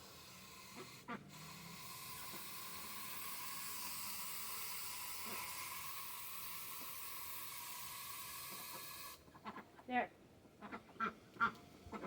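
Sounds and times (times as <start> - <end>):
steady hissing: 0.0 - 9.2.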